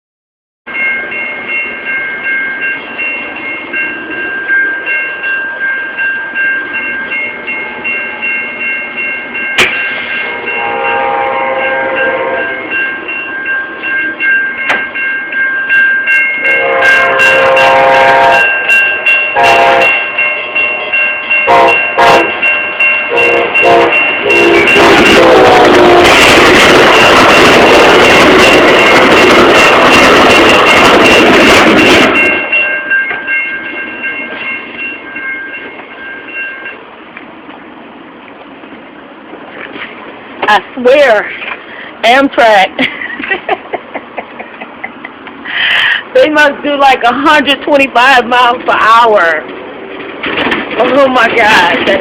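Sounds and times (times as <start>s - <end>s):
railroad crossing bell ringing: 0.7s - 39.8s, 40.4s - 50.0s, 50.6s - 52.0s
train air horn blasts: 10.1s - 12.7s, 16.4s - 22.5s, 23.1s - 28.5s.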